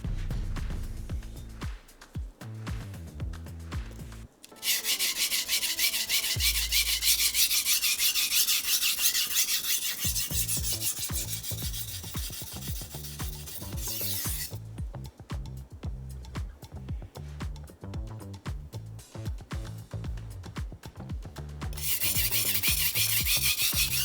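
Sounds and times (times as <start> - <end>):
background music: 0.0 - 7.8, 10.0 - 24.0
knife scraping on whetstone: 4.4 - 14.6, 21.8 - 24.0.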